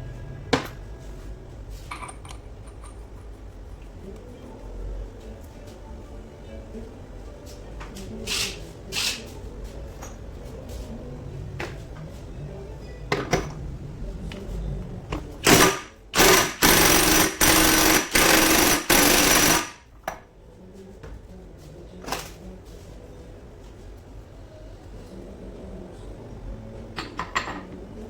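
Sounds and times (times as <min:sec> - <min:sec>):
metal parts clicking and knocking: 0:01.9 - 0:03.3
pneumatic impact wrench bursts: 0:15.4 - 0:19.8.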